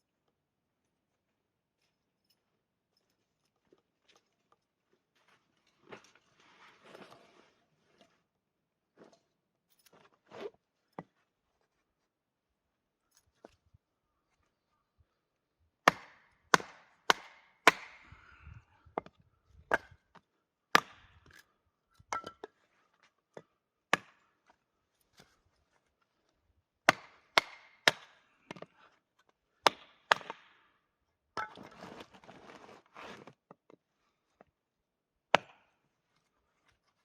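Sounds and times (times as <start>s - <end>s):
rustling and scraping: 3.6s - 8.3s, 31.6s - 33.4s
hatchet chopping firewood: 15.8s - 18.1s, 19.7s - 21.4s, 22.1s - 22.5s, 23.9s - 24.2s, 26.8s - 28.7s, 29.6s - 30.6s, 35.3s - 35.8s.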